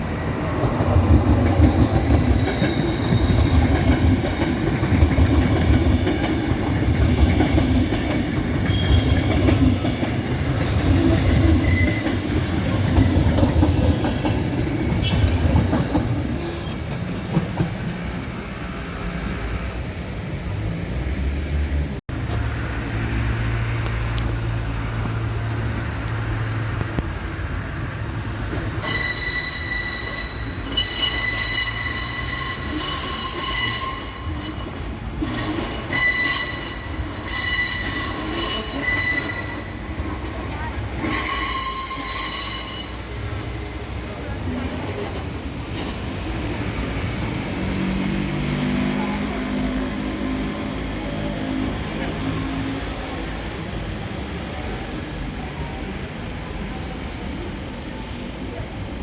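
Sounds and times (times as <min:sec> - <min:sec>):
train wheels rumbling on rails: 0:00.0 - 0:59.0
high wheel squeal: 0:01.5 - 0:04.2, 0:08.5 - 0:10.4, 0:11.0 - 0:14.2, 0:28.8 - 0:43.8.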